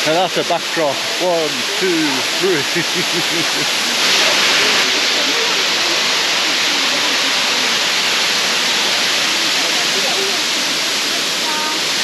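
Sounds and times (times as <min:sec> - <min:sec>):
faint voices: 0:00.0 - 0:12.0
waterfall rushing: 0:00.0 - 0:12.0.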